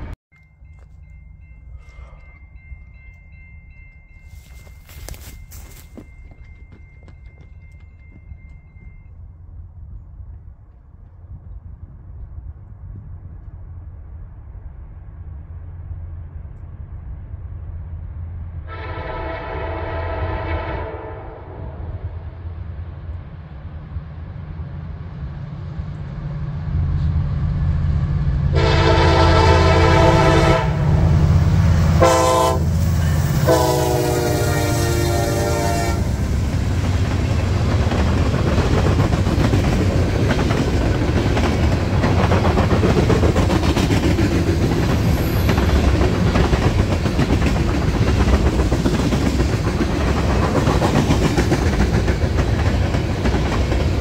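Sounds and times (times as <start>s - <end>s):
train horn blasts: 18.6s - 22.2s, 28.5s - 36.2s
train wheels clattering over rails: 36.2s - 54.0s.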